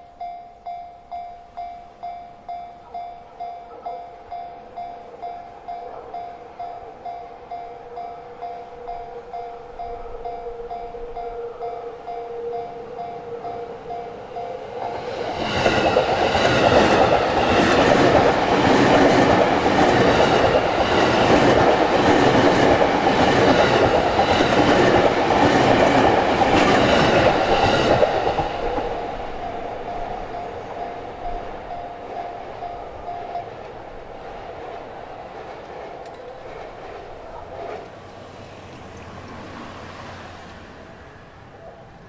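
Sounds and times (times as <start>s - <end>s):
two-tone crossing bell clanging: 0.0s - 35.3s
train wheels clattering over rail joints: 14.8s - 38.0s.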